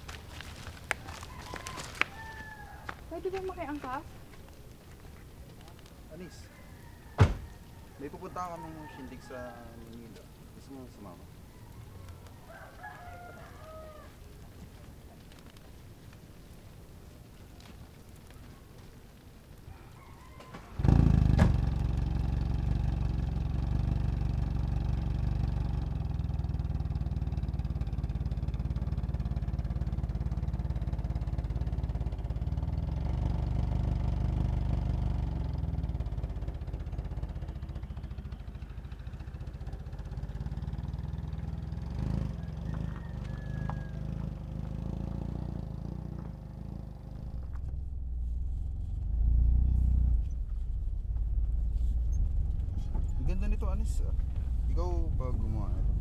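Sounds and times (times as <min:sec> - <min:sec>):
car engine running: 0:42.9 - 0:56.0.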